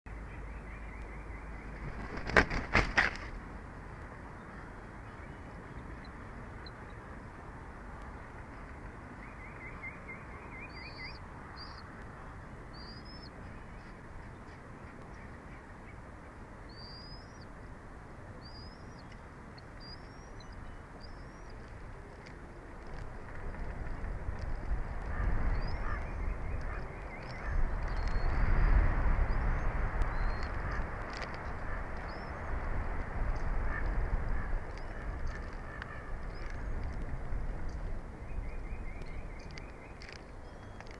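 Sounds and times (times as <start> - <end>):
small bird calls: 8.6 - 11.9, 12.6 - 16.0, 16.7 - 17.6, 18.4 - 23.2, 23.9 - 28.5, 29.2 - 32.6
wind buffeting microphone: 19.1 - 40.9.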